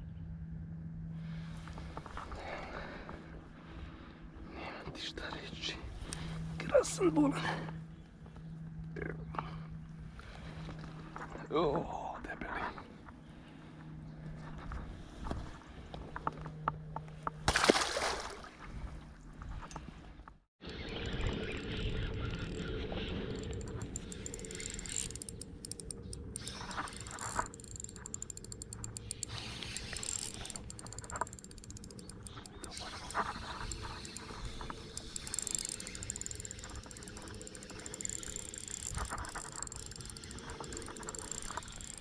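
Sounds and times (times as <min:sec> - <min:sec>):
fishing reel whirring: 0:20.7 - 0:42.0.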